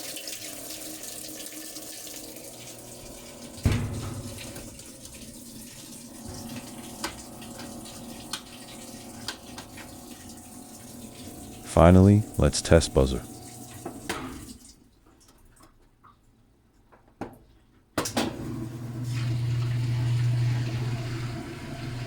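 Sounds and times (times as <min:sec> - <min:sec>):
washing machine filling with water: 0:00.0 - 0:11.6, 0:13.2 - 0:14.8, 0:18.1 - 0:22.0
thump: 0:03.7 - 0:04.2.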